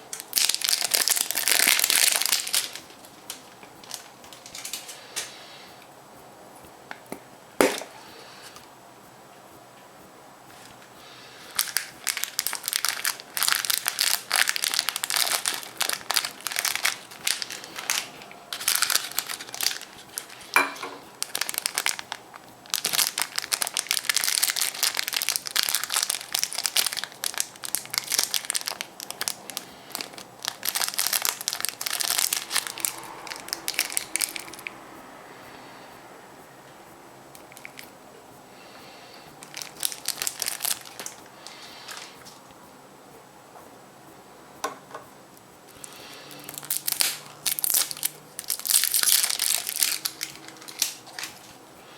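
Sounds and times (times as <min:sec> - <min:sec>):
foil wrapper crinkling: 0:00.1 - 0:05.0, 0:11.5 - 0:34.7, 0:37.4 - 0:37.8, 0:39.4 - 0:41.2, 0:45.7 - 0:51.6.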